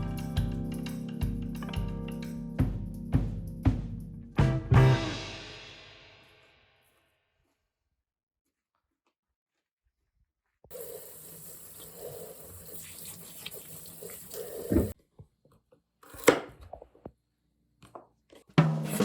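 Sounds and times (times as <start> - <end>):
music: 0.0 - 6.9, 18.6 - 19.0
water running from tap into sink: 10.7 - 15.0.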